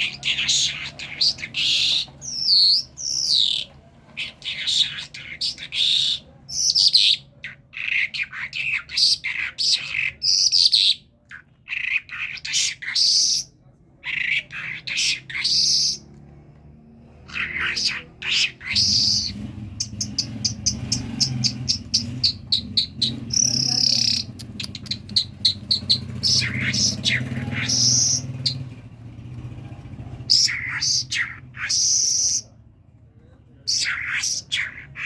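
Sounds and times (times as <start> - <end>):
thrush singing: 0.0 - 10.2, 16.9 - 32.6, 33.7 - 35.0.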